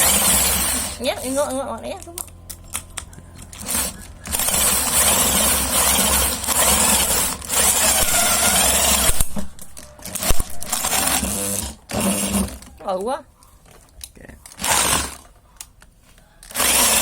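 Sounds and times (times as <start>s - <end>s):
drill driven grinder whirring: 0.0s - 1.5s, 3.3s - 12.7s, 14.5s - 15.3s, 16.4s - 17.0s.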